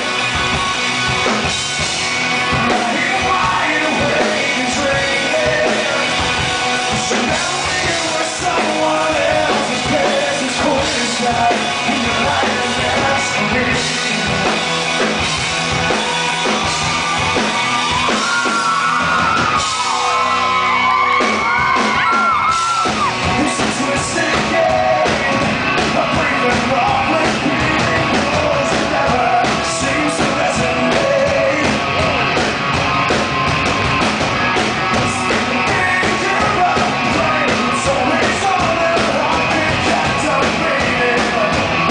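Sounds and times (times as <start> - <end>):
live rock band playing: 0.0 - 41.9
man singing: 2.4 - 14.8, 23.2 - 32.4, 34.9 - 41.9.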